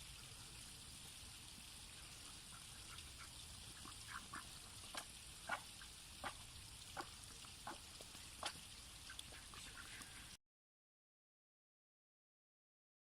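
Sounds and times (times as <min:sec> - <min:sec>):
ducks quacking: 0:02.0 - 0:10.3.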